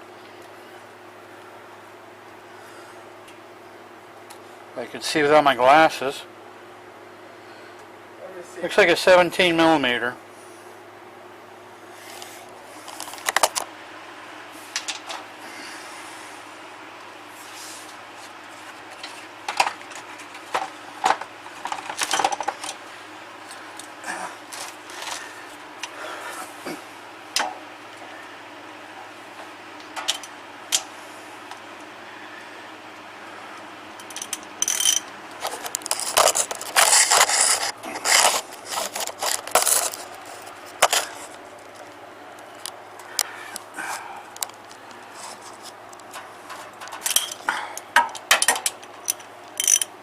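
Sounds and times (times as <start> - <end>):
scraping and rubbing: 35.4 - 41.3.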